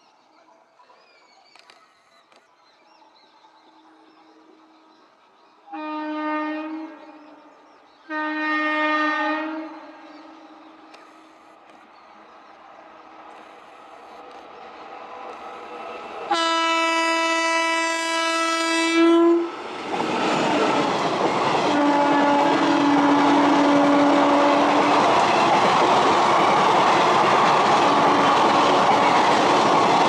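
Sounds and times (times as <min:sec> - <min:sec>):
train horn blast: 0:05.7 - 0:07.5, 0:08.1 - 0:10.6, 0:16.3 - 0:19.6, 0:21.7 - 0:24.9.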